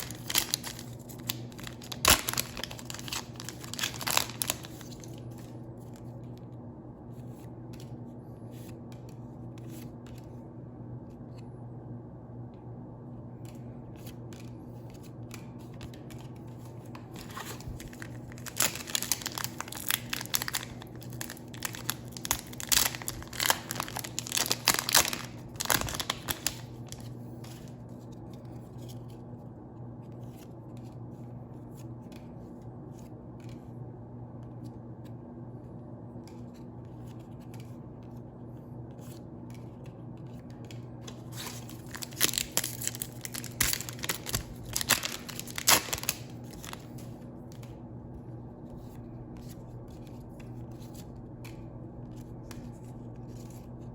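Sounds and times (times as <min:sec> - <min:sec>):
foil wrapper crinkling and tearing: 0:00.0 - 0:05.5, 0:17.0 - 0:27.1, 0:41.1 - 0:47.0
steady low hum: 0:00.0 - 0:53.9.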